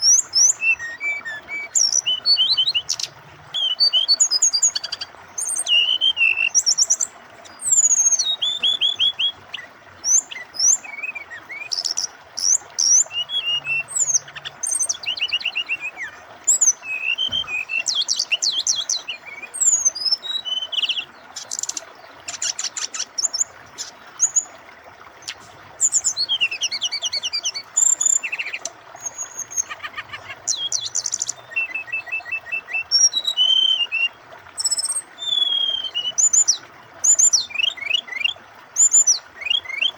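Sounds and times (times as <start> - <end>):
flowing water: 0.0 - 39.9
flycatcher singing: 25.2 - 39.9.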